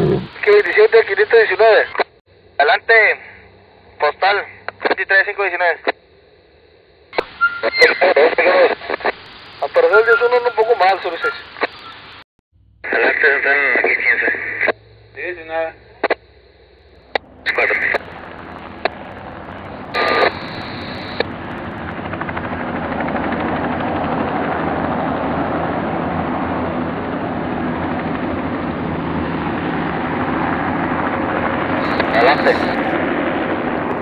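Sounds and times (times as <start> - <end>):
radio squelch bursts: 0.0 - 6.0, 7.2 - 12.2, 12.8 - 21.3, 31.8 - 33.0
helicopter engine and rotor: 9.0 - 12.2, 12.9 - 34.0.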